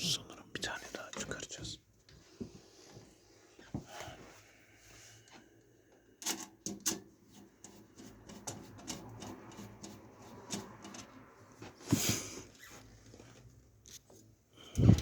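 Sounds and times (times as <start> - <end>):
small parts clicking and scraping: 6.2 - 11.2.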